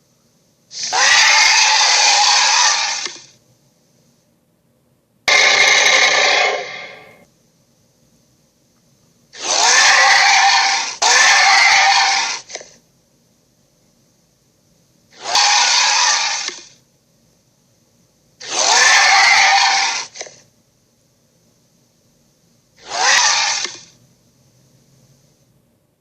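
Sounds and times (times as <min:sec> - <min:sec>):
toy dragon roars: 0:00.7 - 0:03.3, 0:05.3 - 0:07.2, 0:09.4 - 0:12.6, 0:15.2 - 0:16.7, 0:18.4 - 0:20.3, 0:22.8 - 0:23.9.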